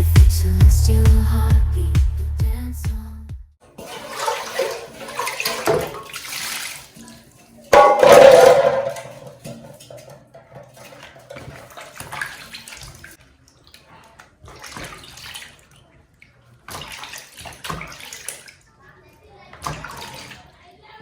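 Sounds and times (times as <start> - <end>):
water gushing: 3.7 - 9.4
water running and splashing: 3.7 - 18.7, 19.6 - 20.6.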